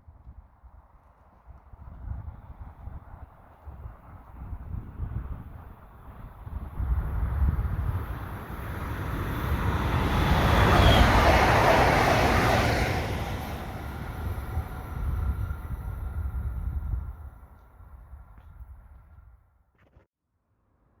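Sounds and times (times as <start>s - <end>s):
wind buffeting microphone: 0.1s - 19.4s
train passing: 2.4s - 18.3s.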